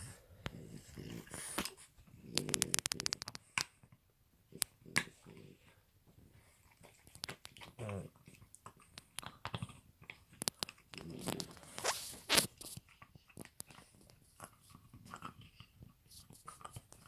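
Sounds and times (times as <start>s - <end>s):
puppy chewing and gnawing: 0.5s - 17.0s.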